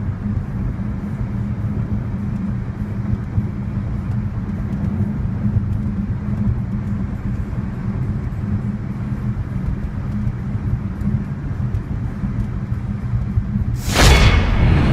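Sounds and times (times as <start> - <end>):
electric car hum: 0.0 - 13.8
sudden loud blast: 13.8 - 14.9.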